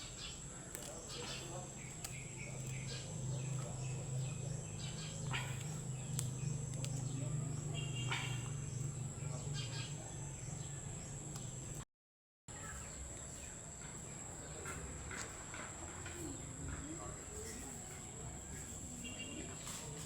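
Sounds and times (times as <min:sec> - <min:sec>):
birds chirping: 0:00.0 - 0:11.8.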